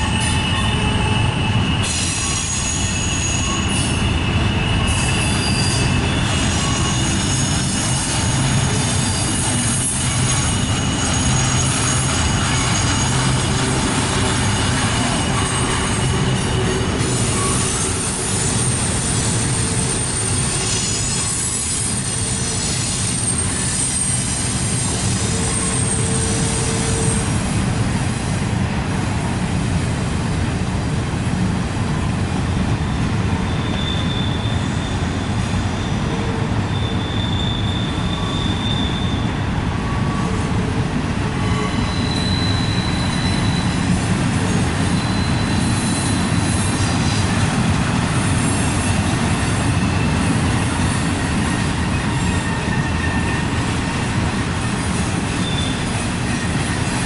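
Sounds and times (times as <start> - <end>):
wheel flange squeal: 0.0 - 27.3, 33.5 - 40.4, 41.4 - 47.2, 49.7 - 53.6, 55.3 - 57.0
train cars rumbling and clattering: 0.0 - 57.0.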